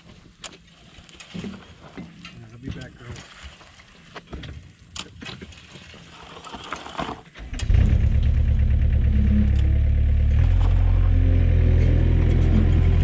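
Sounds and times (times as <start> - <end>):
engine starting and running: 6.9 - 13.0.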